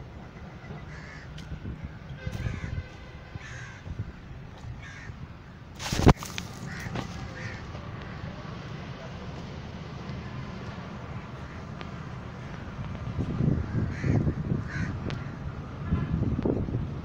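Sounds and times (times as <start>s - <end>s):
birds calling: 0.0s - 1.6s, 2.3s - 2.8s, 3.4s - 8.6s, 10.0s - 15.5s
loud rustle: 5.8s - 7.5s.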